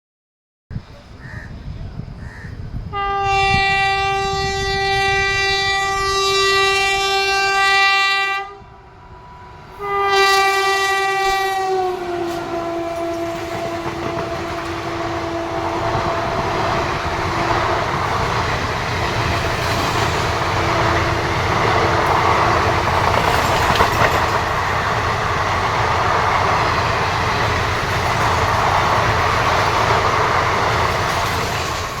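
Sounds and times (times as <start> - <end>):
train coaches rushing by: 0.9 - 32.0
train horn blasts: 2.9 - 23.4
wheels clacking on rail joints: 12.1 - 32.0.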